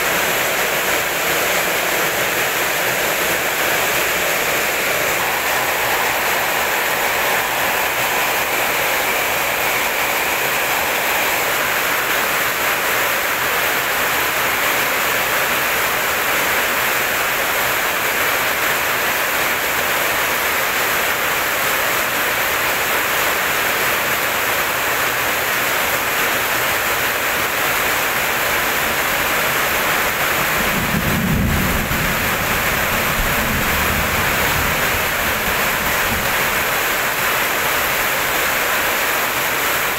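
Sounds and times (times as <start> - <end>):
heavy rain: 0.0 - 39.9
thunder rumble: 30.5 - 36.8.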